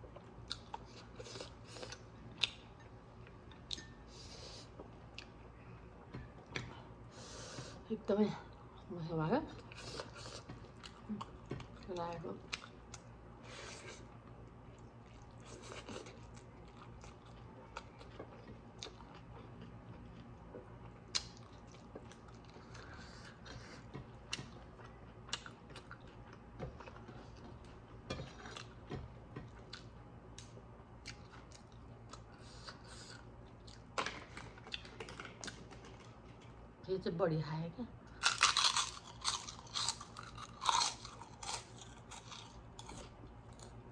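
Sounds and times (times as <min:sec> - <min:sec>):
faint low hum: 0:00.0 - 0:43.9
person chewing and biting: 0:38.2 - 0:43.8.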